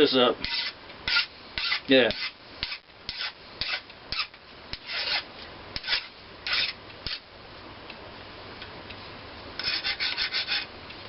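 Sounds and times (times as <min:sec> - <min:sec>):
hand file scraping metal: 0:00.4 - 0:07.2, 0:09.6 - 0:10.7.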